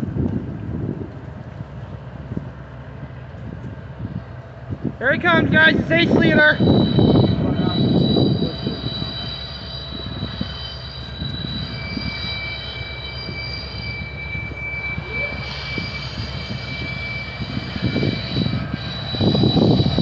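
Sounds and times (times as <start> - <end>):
freight train rumbling past: 0.0 - 20.0
wheels squealing: 5.0 - 20.0.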